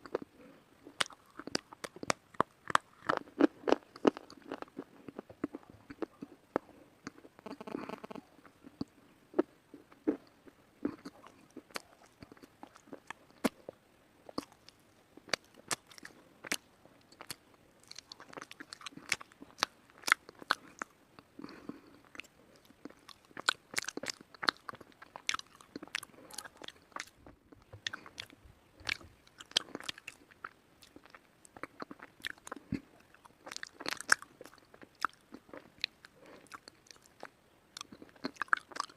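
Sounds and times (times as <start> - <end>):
slate being chewed: 9.8 - 38.9.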